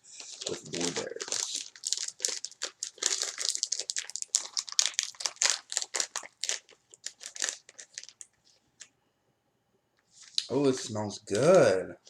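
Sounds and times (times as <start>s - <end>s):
plastic pouch crinkling: 0.2s - 8.9s.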